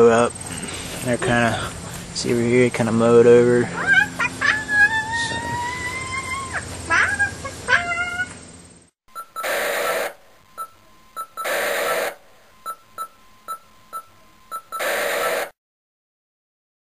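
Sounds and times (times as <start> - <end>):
high-pitched warbling: 9.1 - 15.5
quick regular beeps: 9.1 - 15.6
electronic whooshing bursts: 9.4 - 10.3, 11.2 - 13.1, 13.9 - 15.6.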